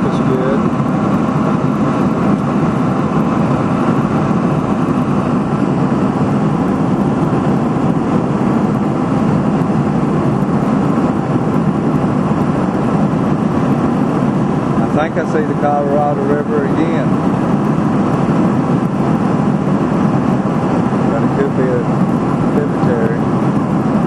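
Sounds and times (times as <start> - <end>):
airliner cabin engine and airflow noise: 0.0 - 24.0.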